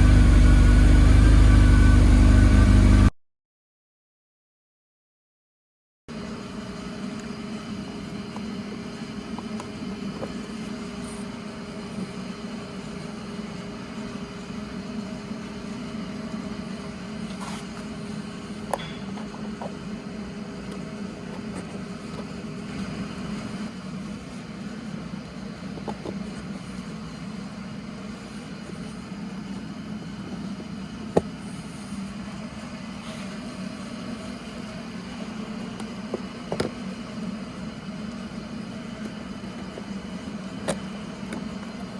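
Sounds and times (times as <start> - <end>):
motorcycle engine idling: 0.0 - 3.1.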